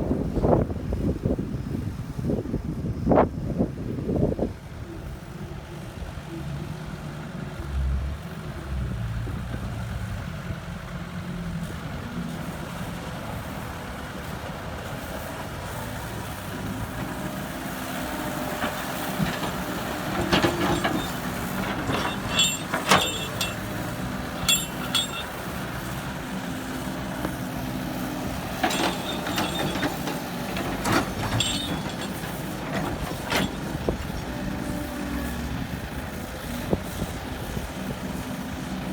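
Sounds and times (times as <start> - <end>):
heavy vehicle engine running: 3.8 - 38.9
sharp clanks and clicks: 18.6 - 25.8, 28.5 - 33.8.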